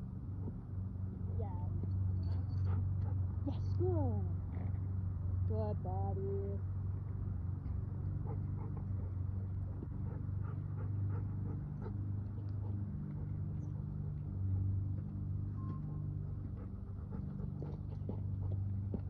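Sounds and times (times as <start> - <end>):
low hum: 0.0 - 19.0
light ticks and steps: 12.2 - 19.0.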